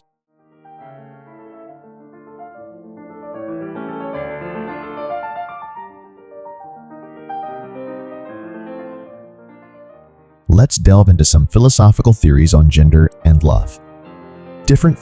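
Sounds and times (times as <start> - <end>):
gentle piano music: 0.4 - 10.5, 13.3 - 15.0.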